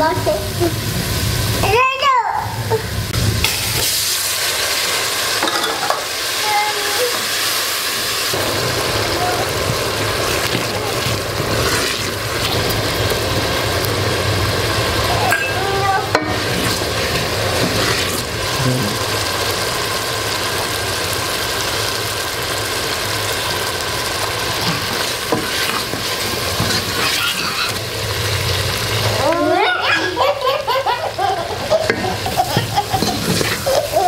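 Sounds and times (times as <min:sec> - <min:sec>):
sauce sizzling in a pot: 0:00.0 - 0:34.0
wooden spoon scraping a pot: 0:10.4 - 0:12.7, 0:16.2 - 0:18.3, 0:24.6 - 0:27.8, 0:32.6 - 0:34.0.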